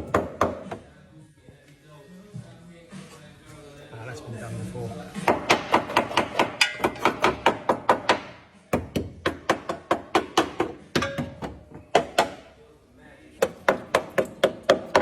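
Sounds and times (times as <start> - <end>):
rapid hammering: 5.2 - 12.5, 13.4 - 15.0.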